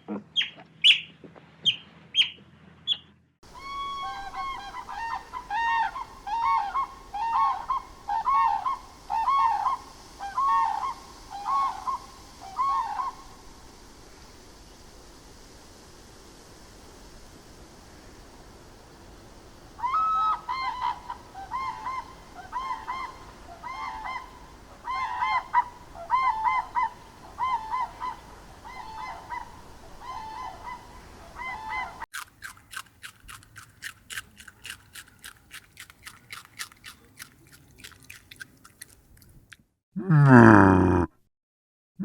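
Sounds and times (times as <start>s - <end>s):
bird clicking calls: 32.1s - 39.6s.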